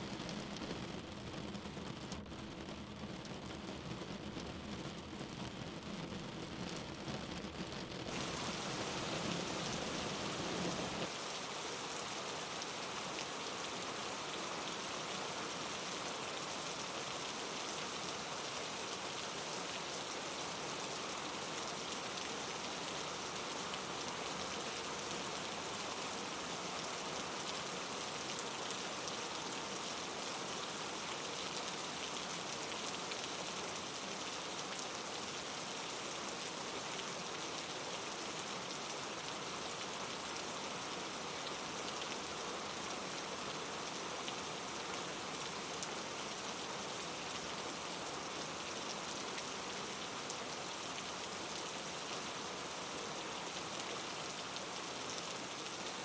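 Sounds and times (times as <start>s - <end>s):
hiss of falling precipitation: 0.0s - 56.0s.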